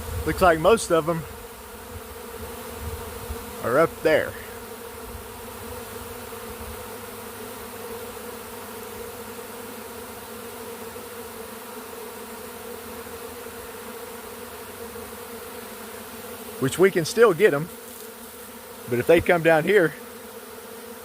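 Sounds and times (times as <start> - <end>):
bee swarm buzzing: 0.0 - 21.0.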